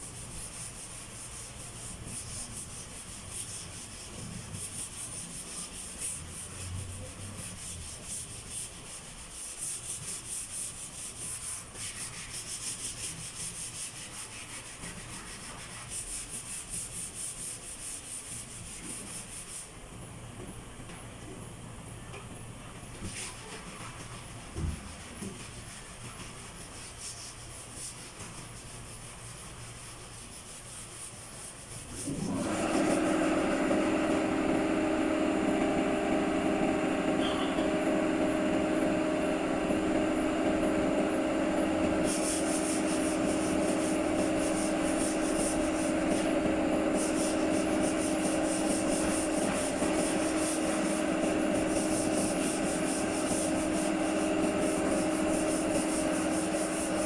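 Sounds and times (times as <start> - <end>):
power sander running: 32.0 - 57.0.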